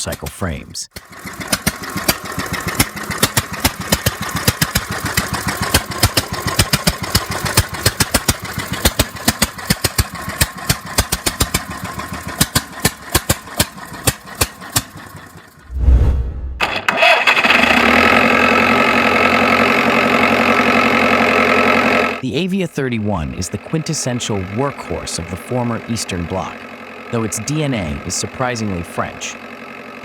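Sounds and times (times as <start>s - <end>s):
diesel engine idling with hard knocks: 0.0s - 15.6s, 23.5s - 30.0s.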